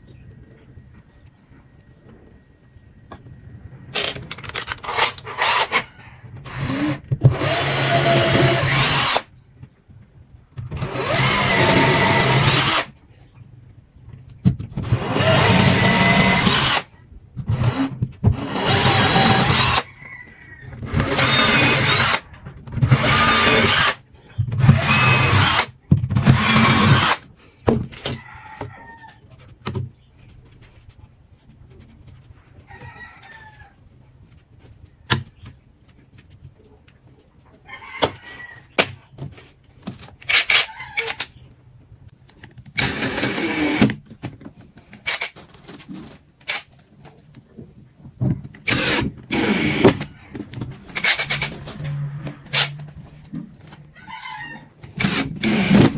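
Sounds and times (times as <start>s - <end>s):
electric drill: 4.8s - 9.3s, 10.8s - 12.9s, 14.8s - 16.9s, 17.5s - 19.9s, 20.9s - 22.2s, 22.8s - 24.0s, 24.6s - 27.2s, 42.8s - 44.0s, 48.7s - 50.1s, 50.9s - 51.6s, 55.0s - 55.9s
chickens and rooster calling: 5.4s - 6.4s, 19.5s - 21.3s, 37.5s - 38.8s, 40.6s - 41.2s, 51.9s - 54.9s.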